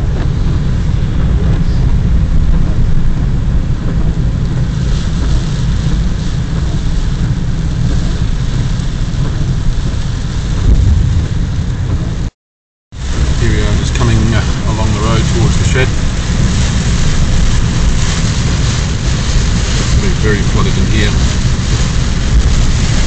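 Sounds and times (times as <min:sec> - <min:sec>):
vehicle driving rumble: 0:00.0 - 0:12.4, 0:13.0 - 0:23.0
rain hiss: 0:00.3 - 0:12.3, 0:13.0 - 0:23.0.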